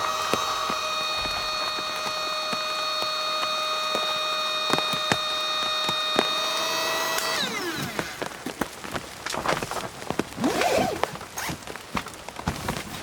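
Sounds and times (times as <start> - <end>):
motor whining: 0.0 - 8.7
clicks: 0.0 - 9.4.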